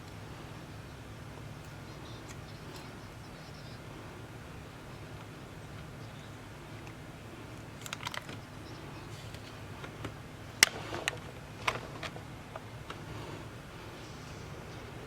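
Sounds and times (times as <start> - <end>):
small tools clicking and tapping: 7.8 - 8.4.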